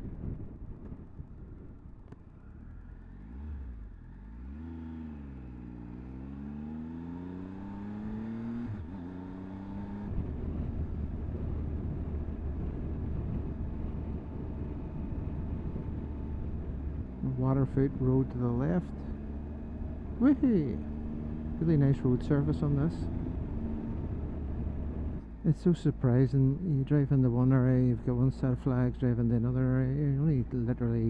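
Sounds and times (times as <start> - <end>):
wind noise: 0.0 - 2.1, 9.8 - 17.2
motorcycle engine accelerating: 0.0 - 31.0
road noise: 0.0 - 31.0.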